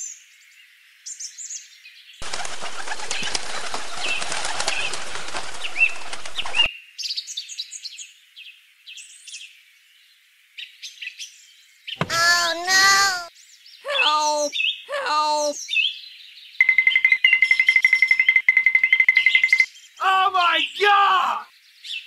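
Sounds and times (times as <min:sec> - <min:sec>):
small birds chirping: 0:01.0 - 0:09.6, 0:10.6 - 0:18.3, 0:19.1 - 0:22.0
doves flapping wings: 0:02.2 - 0:06.7.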